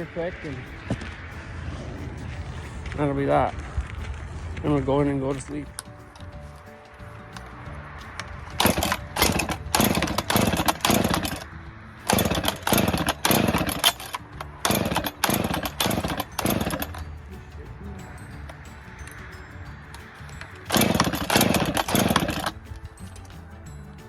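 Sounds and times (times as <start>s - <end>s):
chainsaw starter cord pulled: 8.6s - 11.5s, 12.1s - 17.0s, 20.7s - 22.6s.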